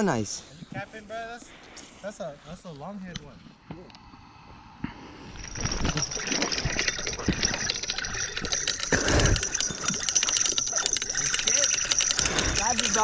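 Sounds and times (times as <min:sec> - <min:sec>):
small clicks: 0:05.8 - 0:13.0.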